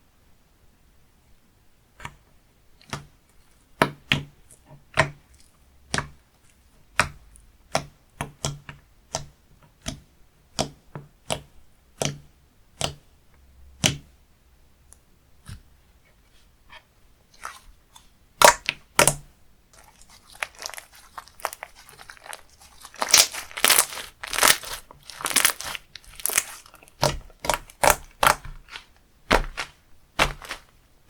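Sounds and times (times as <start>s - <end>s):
slime popping and clicking: 20.4s - 30.6s.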